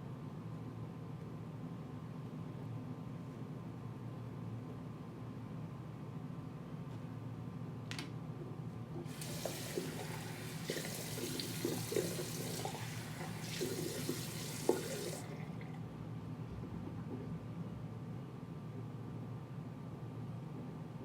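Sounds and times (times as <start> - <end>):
running water from a tap: 9.1 - 15.8.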